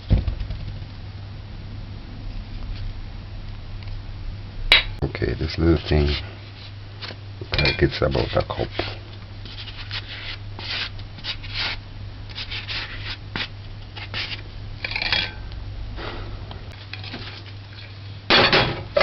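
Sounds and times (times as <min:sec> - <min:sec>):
steady low hum: 0:00.0 - 0:19.0
utensil scraping butter: 0:07.9 - 0:14.4.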